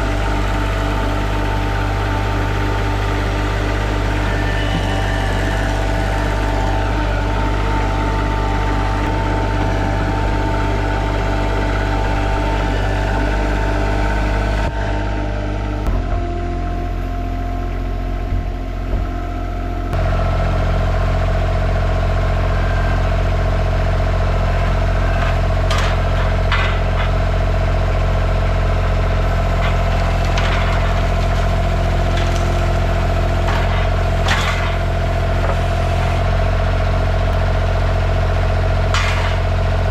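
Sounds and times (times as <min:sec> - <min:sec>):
skid steer engine running: 0:00.0 - 0:39.9
sharp metal knocks and clanks: 0:38.9 - 0:39.6.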